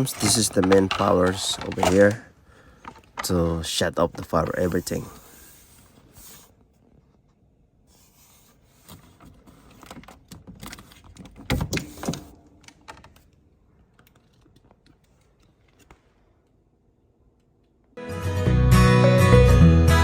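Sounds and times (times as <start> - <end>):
parts clicking and rattling: 0.0 - 5.2, 8.9 - 16.6
parts clattering: 0.0 - 6.2.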